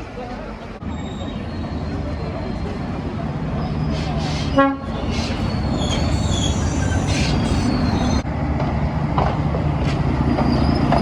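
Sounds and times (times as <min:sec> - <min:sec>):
train rumbling on rails: 0:00.0 - 0:11.0
train wheel squeals: 0:00.9 - 0:08.2, 0:09.8 - 0:11.0.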